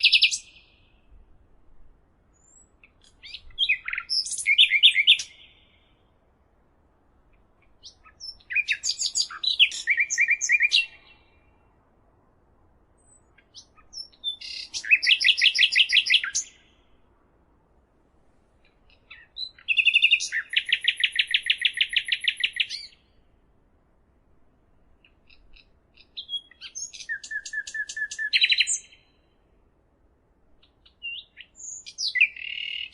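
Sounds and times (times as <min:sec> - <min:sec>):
songbird singing trills: 0:00.0 - 0:01.2, 0:02.3 - 0:06.1, 0:07.3 - 0:11.7, 0:13.0 - 0:17.0, 0:18.6 - 0:23.3, 0:25.0 - 0:29.4, 0:30.6 - 0:32.9.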